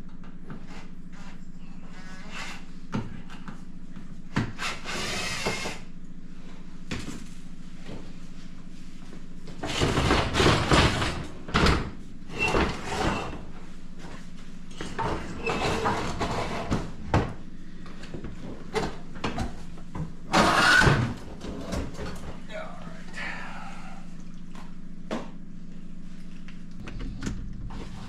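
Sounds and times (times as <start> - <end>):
dishwasher scraping and clattering: 9.6 - 13.5, 14.7 - 17.3, 20.3 - 22.2
low hum: 10.6 - 28.0.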